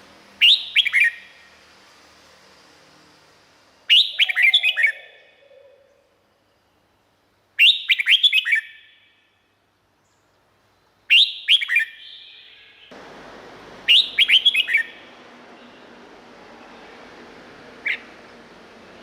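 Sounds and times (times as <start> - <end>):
steady background hiss: 0.0 - 19.0
bird singing whistled notes: 0.4 - 1.6, 3.9 - 6.8, 7.6 - 10.3, 11.1 - 12.9, 13.9 - 15.9, 17.8 - 18.3.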